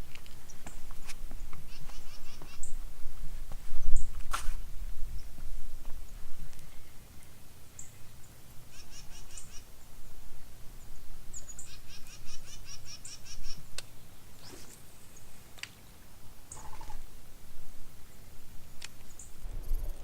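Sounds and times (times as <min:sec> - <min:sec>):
songbird chirping: 0:06.0 - 0:17.1.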